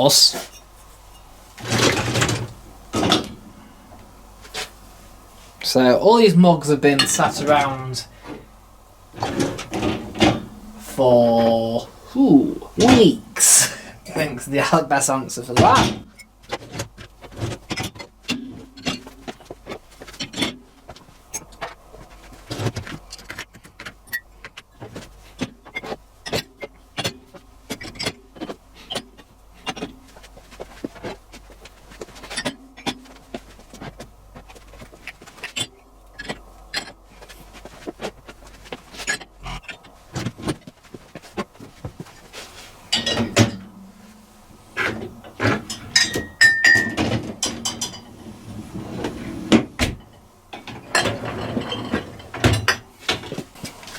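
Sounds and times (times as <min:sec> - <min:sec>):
crockery clinking in dishwasher racks: 0:09.2 - 0:11.8, 0:42.6 - 0:53.4.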